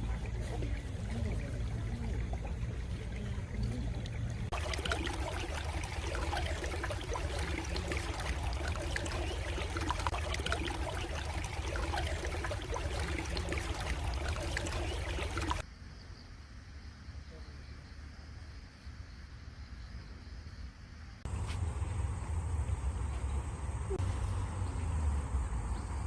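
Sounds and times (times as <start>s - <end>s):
stream water trickling: 0.0s - 15.6s, 21.3s - 26.0s.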